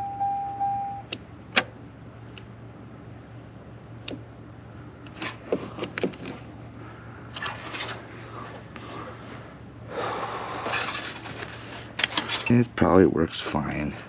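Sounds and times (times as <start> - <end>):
steady low hum: 0.0 - 14.0
scraping and rustling: 7.3 - 9.0, 10.6 - 12.5.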